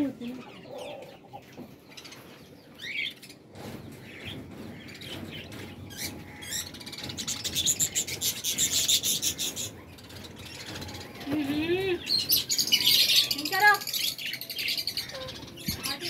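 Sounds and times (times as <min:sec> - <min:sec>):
small caged birds chirping: 0:00.0 - 0:16.0.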